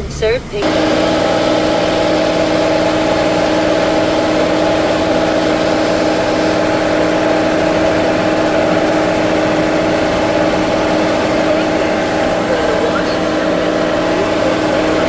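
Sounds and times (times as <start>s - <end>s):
mechanical drone with pitched hum: 0.0s - 15.0s.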